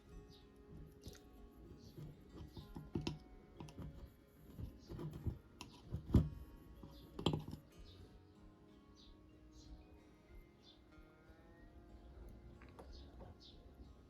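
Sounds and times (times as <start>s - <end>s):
clicks and knocks on hand drill: 1.7s - 7.7s.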